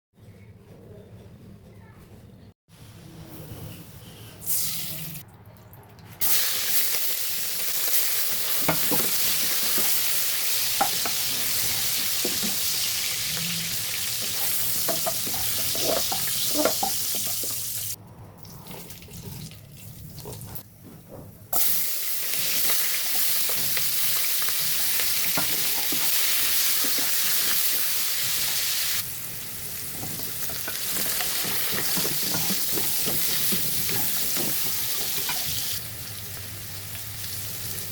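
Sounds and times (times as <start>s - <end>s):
food sizzling in hot oil: 6.2s - 18.0s, 21.6s - 37.9s.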